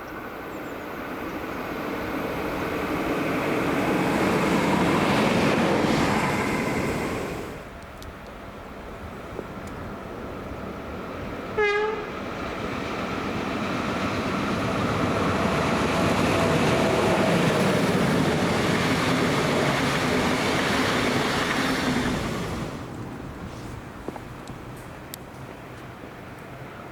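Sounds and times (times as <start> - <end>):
train passing: 0.0 - 26.9
train horn blast: 11.6 - 12.1.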